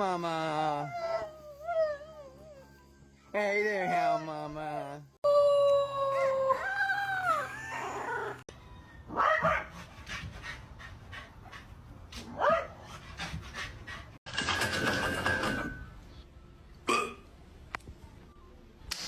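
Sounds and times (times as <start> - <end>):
dog howling: 5.2 - 8.5.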